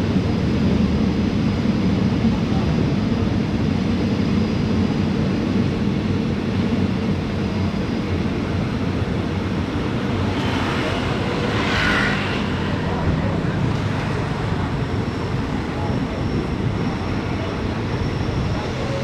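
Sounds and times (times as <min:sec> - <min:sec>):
train rumbling on tracks: 0:05.2 - 0:19.0.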